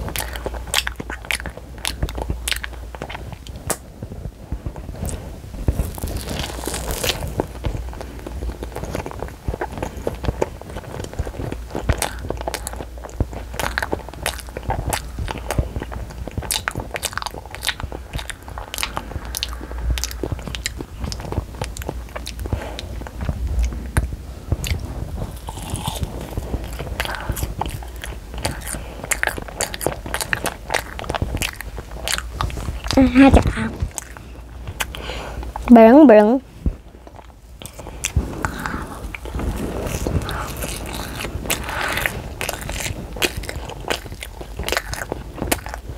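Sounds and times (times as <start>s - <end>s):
child chewing candy: 0.0s - 3.9s, 4.6s - 35.7s, 36.6s - 45.9s.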